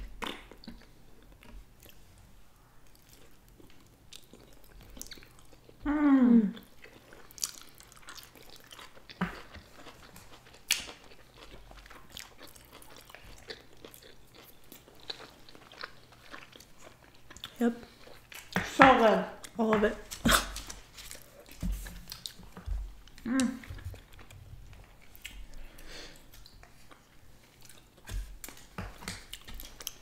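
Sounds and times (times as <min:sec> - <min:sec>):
chewing sushi: 0:00.0 - 0:02.2, 0:02.8 - 0:05.8, 0:06.5 - 0:18.8, 0:19.4 - 0:30.0
person humming: 0:05.9 - 0:06.6, 0:23.2 - 0:23.7.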